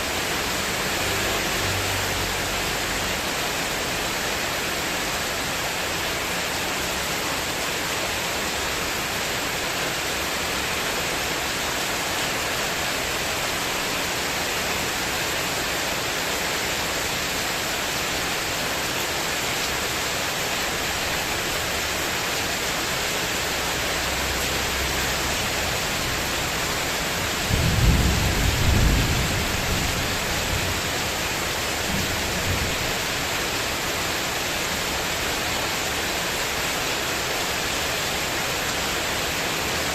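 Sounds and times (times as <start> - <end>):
heavy rain on a metal roof: 0.0 - 39.9
low rumble of thunder: 27.4 - 31.1.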